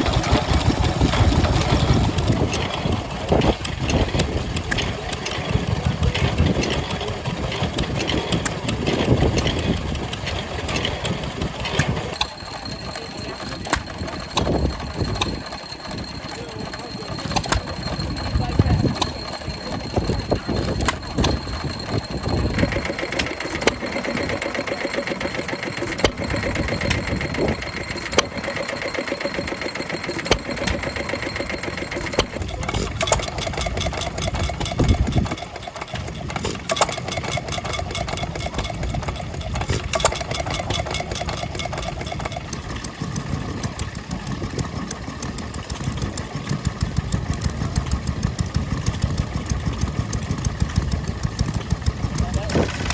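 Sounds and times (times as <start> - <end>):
wind buffeting microphone: 0.0 - 16.6, 17.6 - 23.0, 32.2 - 35.4
stationary engines clattering: 0.0 - 52.9.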